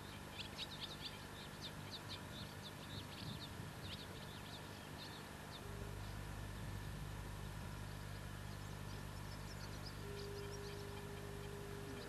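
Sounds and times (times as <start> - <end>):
small bird chirping: 0.0 - 7.0, 7.7 - 12.0.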